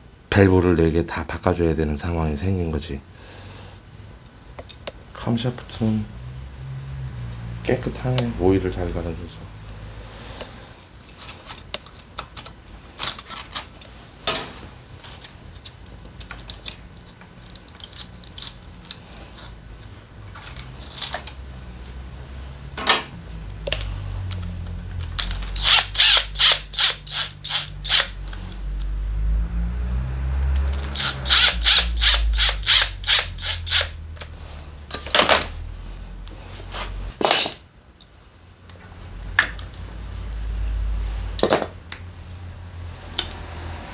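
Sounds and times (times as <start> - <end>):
tools clicking and knocking on metal: 37.2 - 37.6, 41.4 - 42.0.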